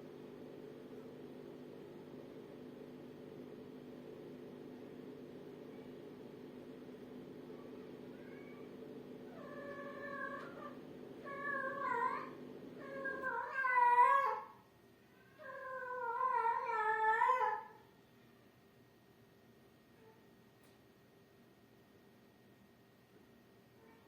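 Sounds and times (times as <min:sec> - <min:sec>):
cat meowing: 0:08.1 - 0:08.7, 0:09.3 - 0:14.5.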